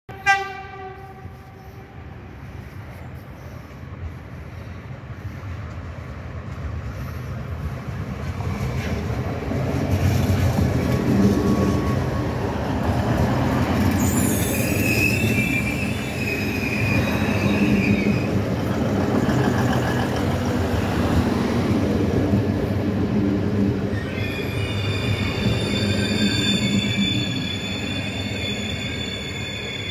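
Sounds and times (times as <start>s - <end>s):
train running noise: 0.1s - 29.9s
high-pitched wheel squealing: 13.9s - 18.4s, 23.9s - 29.9s.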